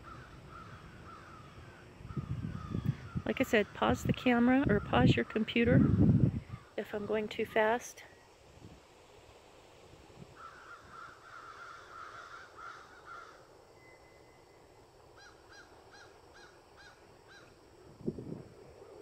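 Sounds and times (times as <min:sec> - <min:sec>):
bird calling: 0:00.0 - 0:07.9, 0:10.4 - 0:14.6, 0:15.2 - 0:17.6.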